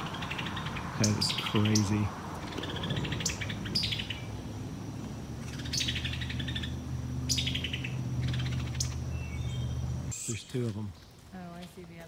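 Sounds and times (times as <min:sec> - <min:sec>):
steady low hum: 0:00.0 - 0:12.0
bird rattling calls: 0:05.4 - 0:09.8.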